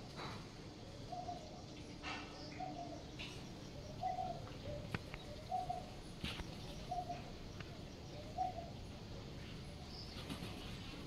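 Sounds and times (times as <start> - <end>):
bird cooing: 1.0 - 6.0, 6.6 - 9.0.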